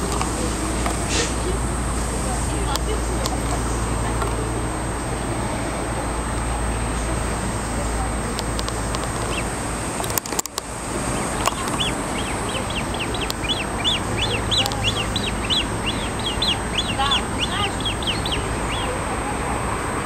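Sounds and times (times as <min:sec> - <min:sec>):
steady background hiss: 0:00.0 - 0:20.0
bird chirping high: 0:08.4 - 0:10.0, 0:10.6 - 0:19.4
lower bird call: 0:08.4 - 0:10.0, 0:10.6 - 0:20.0.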